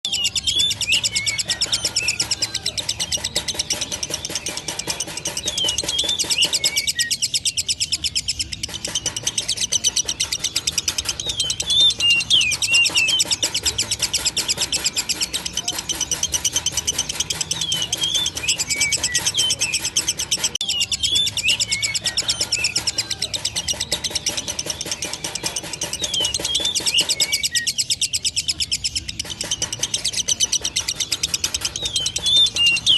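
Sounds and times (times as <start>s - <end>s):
lovebird chattering: 0.0s - 32.9s
sweeping bird chirps: 0.0s - 32.9s.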